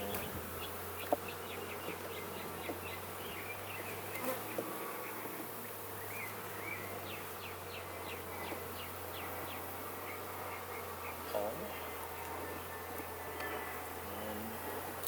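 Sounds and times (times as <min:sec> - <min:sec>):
honeybees buzzing: 0:00.0 - 0:15.0
faint clicks of hive frames: 0:00.1 - 0:06.3, 0:07.1 - 0:09.6, 0:10.5 - 0:14.0.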